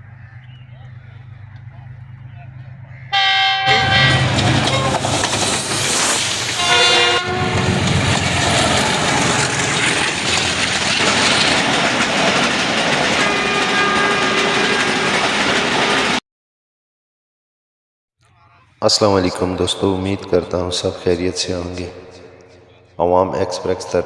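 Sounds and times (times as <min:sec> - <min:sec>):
train wheel and track noise: 0:00.0 - 0:16.2
train horn: 0:03.1 - 0:05.1, 0:06.6 - 0:08.1, 0:13.2 - 0:16.2.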